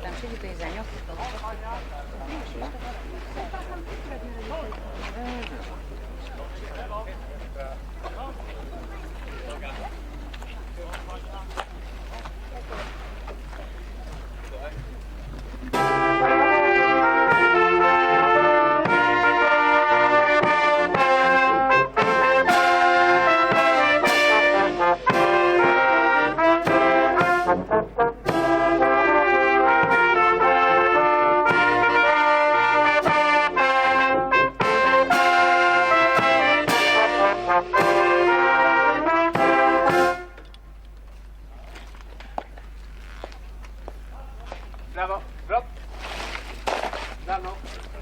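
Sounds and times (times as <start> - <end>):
brass band playing: 15.6 - 40.5.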